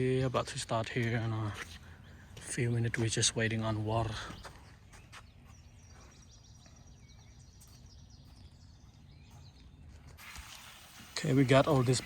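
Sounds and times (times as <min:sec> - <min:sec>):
faint bird chirps: 0:04.0 - 0:10.2.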